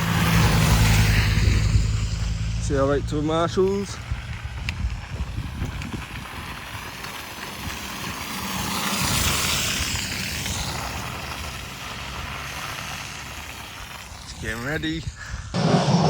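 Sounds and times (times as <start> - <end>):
car driving past on gravel: 0.0 - 14.3.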